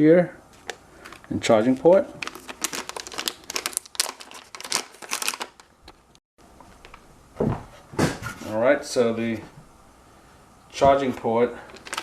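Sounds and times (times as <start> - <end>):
dull thump: 7.4 - 8.4
plastic parts clicking and rustling: 11.7 - 12.0.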